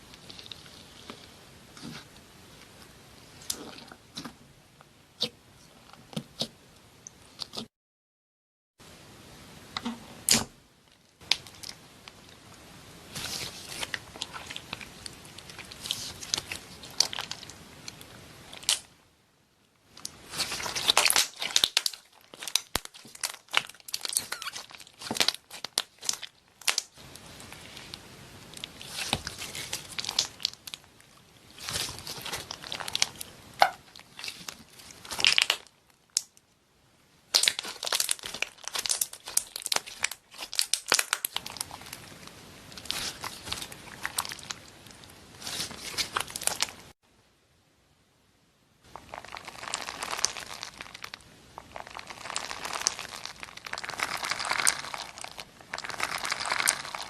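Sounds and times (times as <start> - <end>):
slime squeezed crackling: 13.1 - 18.9, 20.0 - 36.4, 37.3 - 46.9, 48.9 - 57.0.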